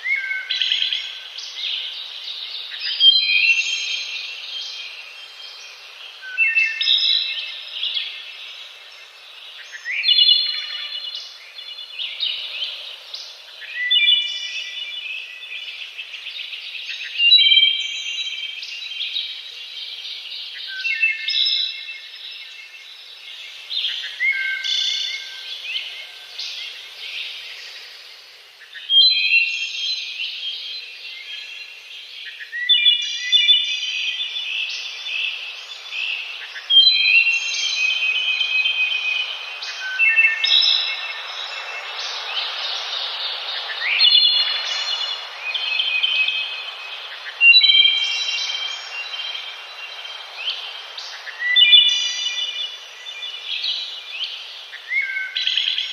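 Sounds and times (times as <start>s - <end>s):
songbirds chirping and trilling: 0.0s - 55.9s
steady background hiss: 0.0s - 55.9s.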